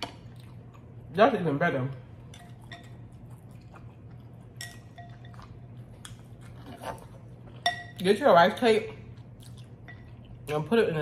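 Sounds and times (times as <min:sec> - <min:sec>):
person chewing noodles: 0:00.0 - 0:01.0, 0:02.1 - 0:07.6, 0:09.0 - 0:10.5.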